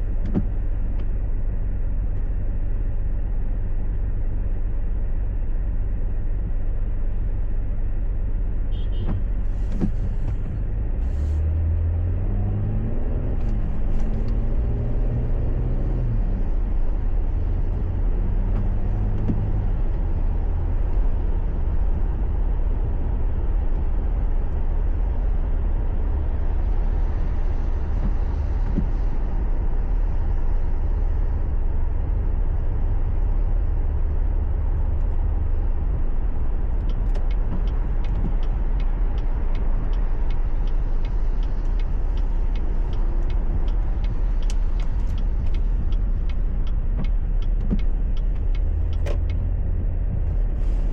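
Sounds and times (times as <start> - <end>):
car engine and road noise: 0.0 - 50.9
faint clicks: 36.7 - 49.9.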